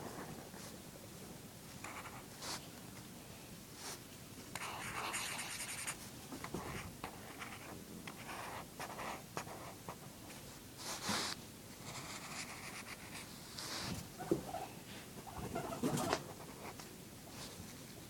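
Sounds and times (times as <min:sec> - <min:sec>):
drawing tool scratching on paper: 0:04.6 - 0:06.0.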